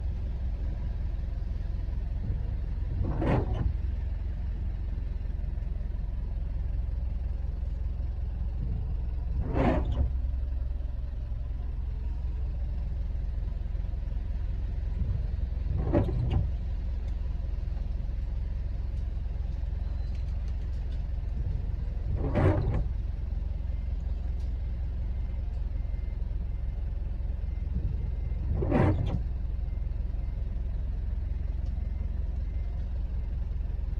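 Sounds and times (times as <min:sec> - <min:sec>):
car engine idling: 0:00.0 - 0:33.9
windscreen wipers sweeping: 0:00.6 - 0:04.2, 0:08.6 - 0:10.7, 0:14.3 - 0:18.0, 0:18.8 - 0:23.1, 0:27.7 - 0:29.4.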